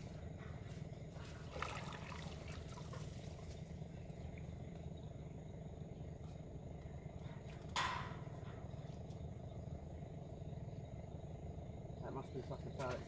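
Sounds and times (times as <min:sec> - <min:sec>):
fish splashing in water: 0:01.4 - 0:03.4.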